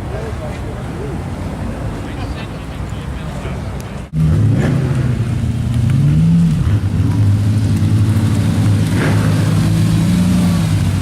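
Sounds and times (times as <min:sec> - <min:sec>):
sports car exhaust while driving: 0:04.2 - 0:11.0.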